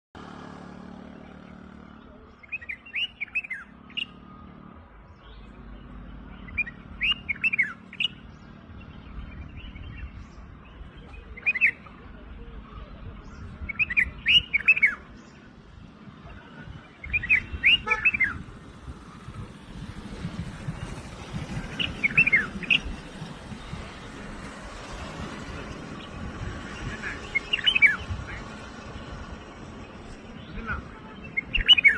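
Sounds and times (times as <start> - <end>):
bird chirping: 1.0 - 19.3, 20.2 - 31.9.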